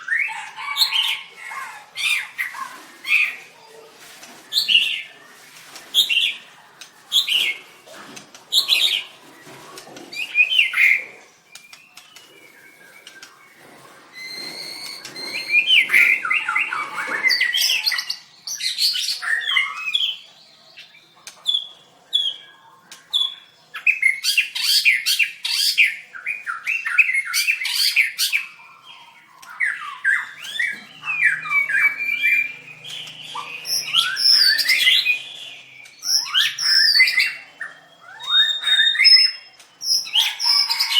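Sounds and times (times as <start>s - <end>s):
bird singing: 8.5s - 40.9s.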